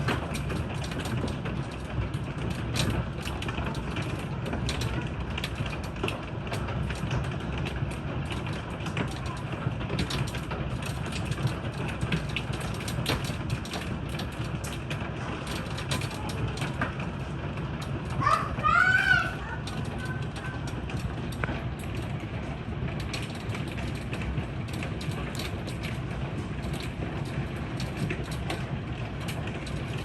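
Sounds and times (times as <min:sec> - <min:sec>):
hailstones clattering: 0:00.0 - 0:30.0
rain hissing: 0:09.5 - 0:30.0.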